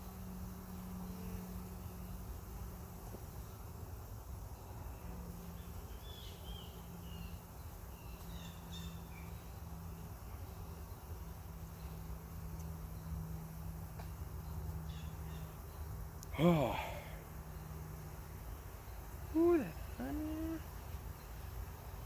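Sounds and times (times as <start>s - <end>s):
honeybees humming: 0.0s - 22.0s.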